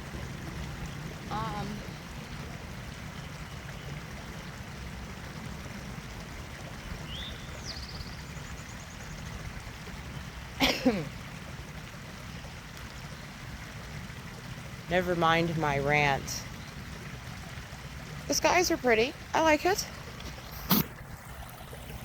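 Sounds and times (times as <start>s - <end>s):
trickling water: 0.0s - 22.0s
bird chirp and trill: 7.1s - 9.2s.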